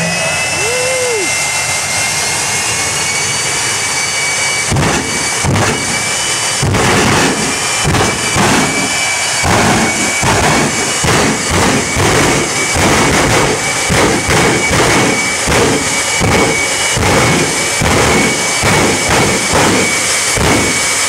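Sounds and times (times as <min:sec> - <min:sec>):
jet engine turbine whine: 0:00.0 - 0:21.0
loud rushing surges: 0:04.5 - 0:21.0.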